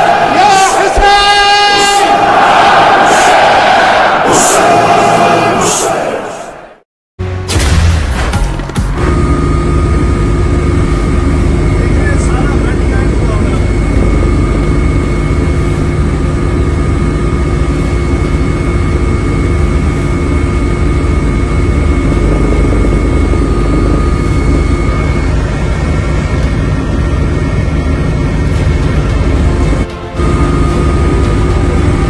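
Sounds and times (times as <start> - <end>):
aircraft engine drone: 8.9 - 32.0.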